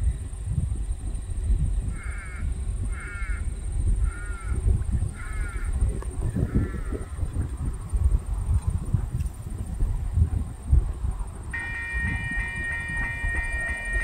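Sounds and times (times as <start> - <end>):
bird calling: 11.6 - 14.0.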